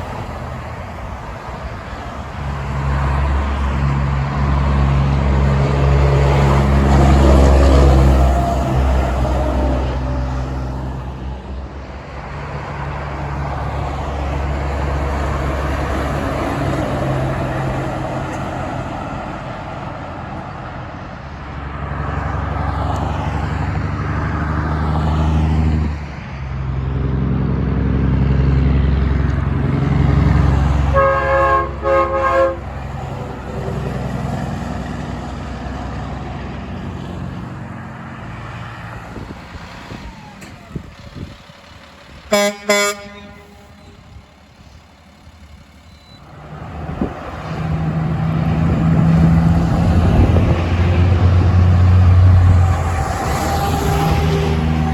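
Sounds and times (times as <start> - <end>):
heavy trucks driving past: 0.0 - 54.9
truck air horn blasts: 30.8 - 33.7, 42.3 - 44.4.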